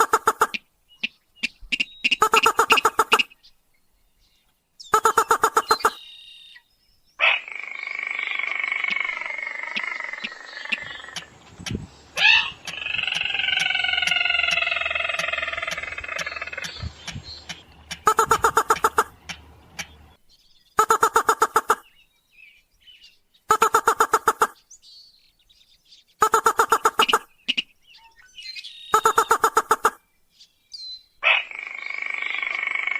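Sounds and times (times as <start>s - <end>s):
long drawn-out bird calls: 0.0s - 3.5s, 4.8s - 22.2s, 23.4s - 24.8s, 26.1s - 30.1s, 31.0s - 32.9s
faint regular ticks: 12.6s - 20.0s.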